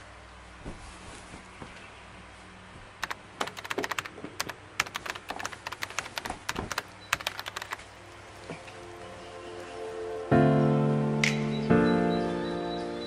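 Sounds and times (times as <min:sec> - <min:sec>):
quick irregular clicks and taps: 0:03.0 - 0:07.8.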